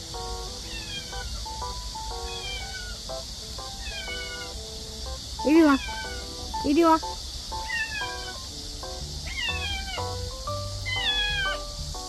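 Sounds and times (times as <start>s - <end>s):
background music: 0.0s - 12.0s
cat meowing: 0.7s - 1.4s, 2.2s - 3.0s, 3.8s - 4.5s, 5.5s - 6.3s, 7.6s - 8.4s, 9.2s - 10.2s, 10.9s - 11.7s.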